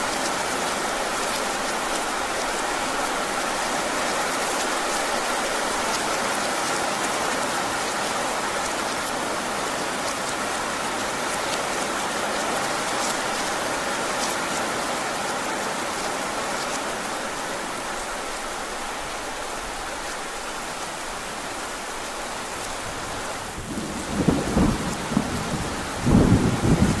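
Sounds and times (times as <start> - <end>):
heavy rain falling: 0.0 - 27.0
rolling thunder: 23.5 - 27.0.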